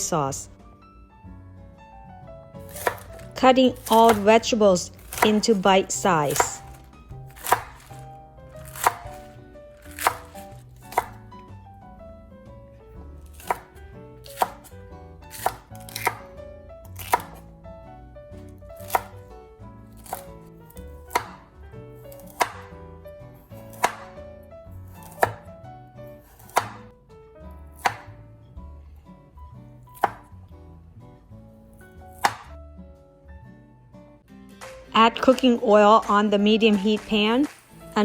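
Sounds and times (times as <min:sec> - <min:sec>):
soft background music: 0:00.0 - 0:38.0
knife chopping on cutting board: 0:02.6 - 0:11.4, 0:13.2 - 0:17.5, 0:18.4 - 0:19.2, 0:19.9 - 0:22.8, 0:23.4 - 0:26.9, 0:27.8 - 0:28.2, 0:29.9 - 0:30.4, 0:31.7 - 0:32.6, 0:36.1 - 0:38.0.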